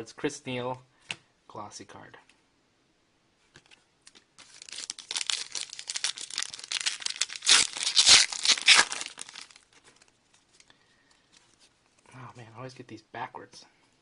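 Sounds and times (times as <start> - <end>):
wrapper tearing and crinkling: 4.4 - 10.1.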